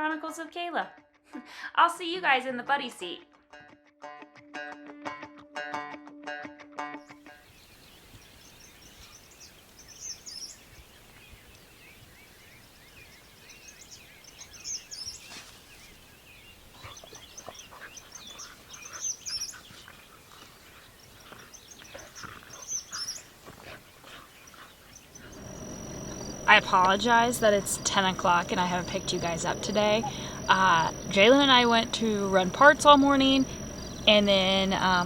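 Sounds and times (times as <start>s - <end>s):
bird chirps: 7.5s - 20.0s, 24.9s - 35.0s.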